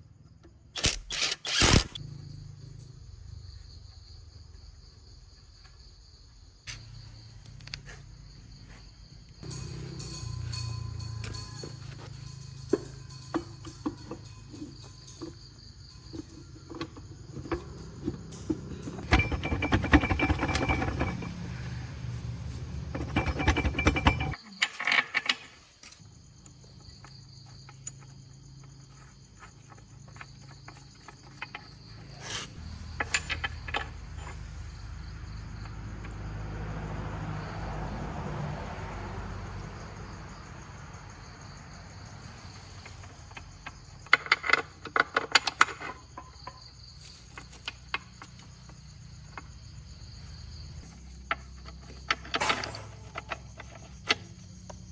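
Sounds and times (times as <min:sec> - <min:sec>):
insects chirping: 0:00.0 - 0:54.9
metal clicks and clinks: 0:09.4 - 0:16.9, 0:22.8 - 0:26.0, 0:32.6 - 0:34.4, 0:42.8 - 0:46.6, 0:51.2 - 0:54.2.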